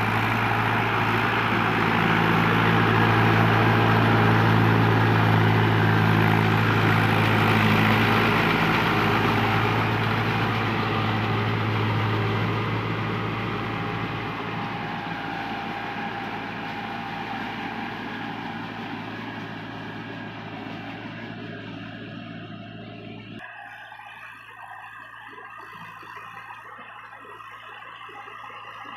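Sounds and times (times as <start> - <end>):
tractor diesel engine running: 0.0 - 25.2.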